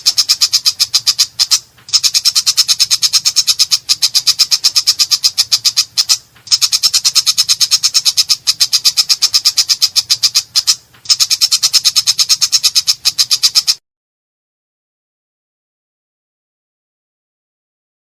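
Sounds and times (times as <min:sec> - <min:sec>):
shrike singing harsh rattle: 0:00.0 - 0:13.8.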